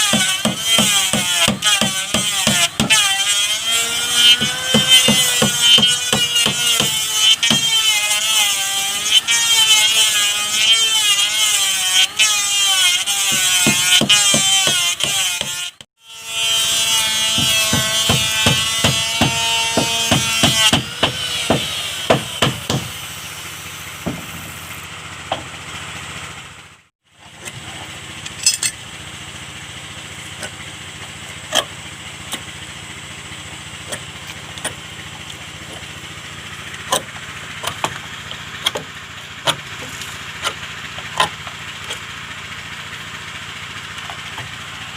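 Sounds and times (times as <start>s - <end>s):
power tool running: 0.0s - 44.9s
sharp knocks on wood: 17.3s - 22.9s, 24.0s - 24.4s.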